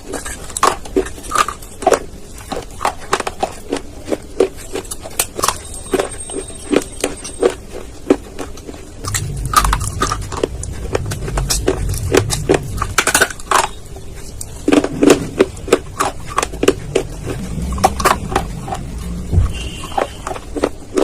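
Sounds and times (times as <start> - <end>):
crunching of dry clay being chewed: 0.0 - 21.0
low rumble: 9.0 - 20.6.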